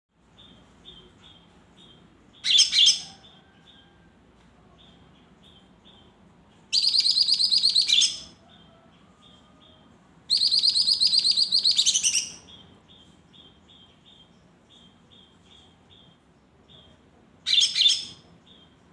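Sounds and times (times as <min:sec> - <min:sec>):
bird singing trilled notes: 0:04.8 - 0:08.8, 0:10.3 - 0:18.9.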